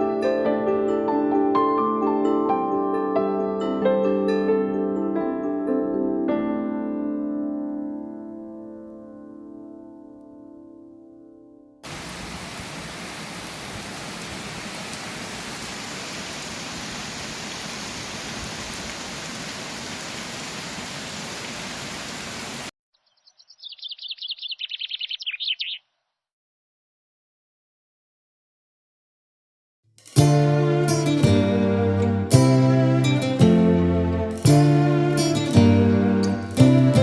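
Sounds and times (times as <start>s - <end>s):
heavy rain hissing: 11.8s - 22.7s
bird's rapid high trill: 23.2s - 25.8s.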